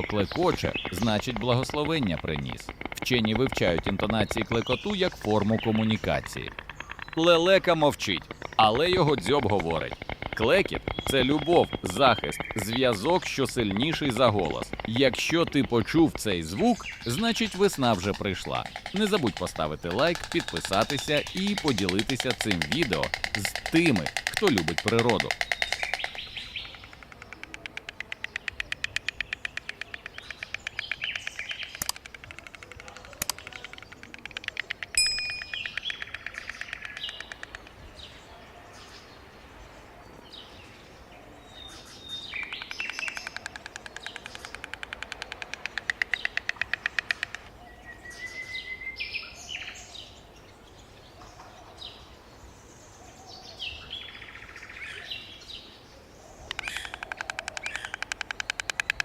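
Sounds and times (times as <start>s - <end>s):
stork bill clattering: 0.0s - 37.9s, 42.4s - 47.6s, 56.5s - 59.0s
birds chirping: 0.0s - 59.0s.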